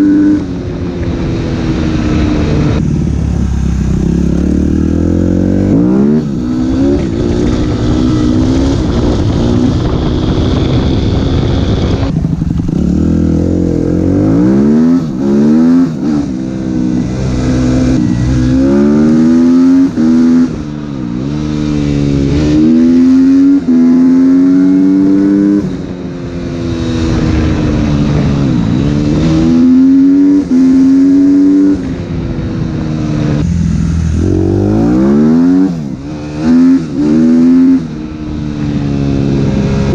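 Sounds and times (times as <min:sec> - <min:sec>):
motocross engine revving: 0:11.4 - 0:16.4, 0:17.2 - 0:25.6, 0:33.3 - 0:38.0.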